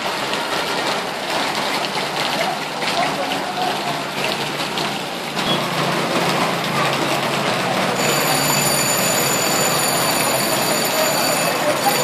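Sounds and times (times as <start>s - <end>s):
heavy rain and floodwater rushing: 0.0s - 12.0s
high electronic ringing tone: 8.0s - 12.0s.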